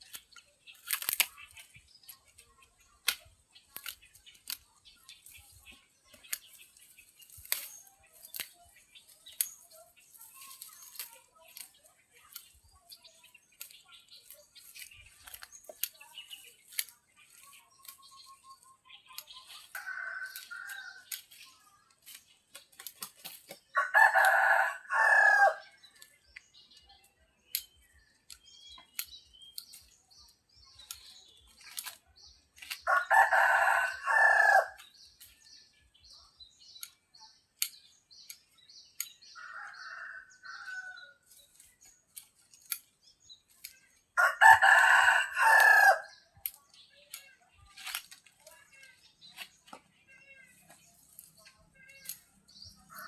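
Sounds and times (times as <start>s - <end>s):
rooster crowing: 23.8s - 25.6s, 32.9s - 34.8s, 39.4s - 41.1s, 44.2s - 46.0s.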